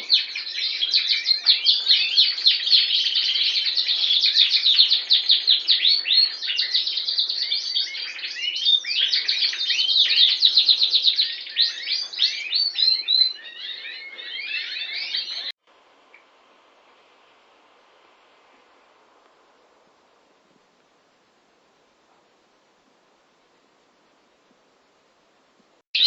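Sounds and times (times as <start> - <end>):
canary singing trills: 0.0 - 15.6.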